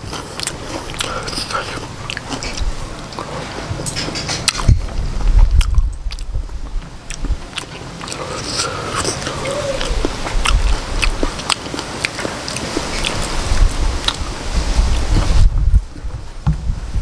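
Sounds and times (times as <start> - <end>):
mouth smacking clicks: 0.0 - 4.9, 5.5 - 16.1
wet chewing: 0.0 - 16.1
low rumble: 1.2 - 7.6, 13.0 - 17.0.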